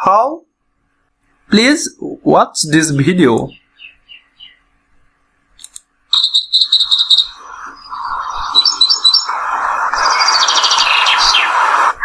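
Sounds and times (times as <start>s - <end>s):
steady background hiss: 0.0s - 12.0s
birds chirping: 3.2s - 4.9s, 6.1s - 12.0s.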